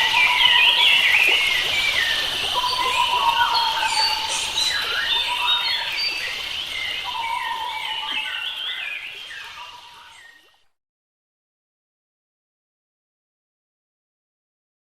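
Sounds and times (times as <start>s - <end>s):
birds chirping and whistling: 0.0s - 10.4s.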